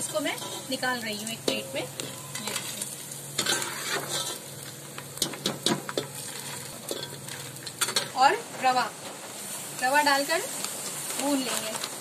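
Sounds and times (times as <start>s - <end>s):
metal skimmer scraping a pot: 0.0s - 0.8s, 3.4s - 4.4s
gum sizzling in hot oil: 0.0s - 12.0s.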